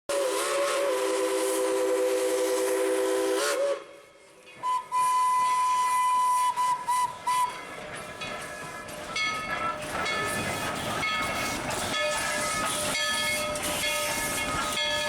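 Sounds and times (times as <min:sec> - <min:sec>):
steam locomotive whistle: 0:00.1 - 0:07.7
steam hiss: 0:00.1 - 0:09.1, 0:09.8 - 0:15.0.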